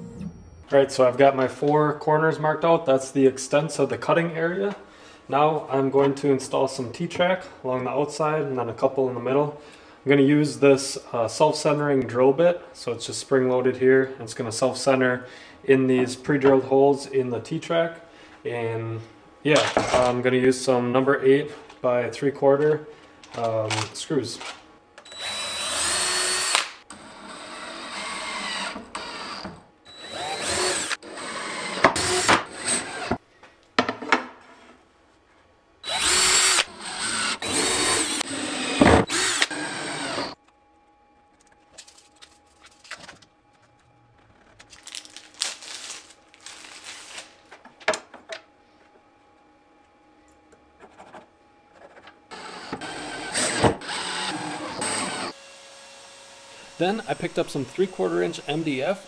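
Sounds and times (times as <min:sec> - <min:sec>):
power drill bursts: 0:25.0 - 0:26.8, 0:27.6 - 0:33.2, 0:35.8 - 0:40.4, 0:52.3 - 0:59.0.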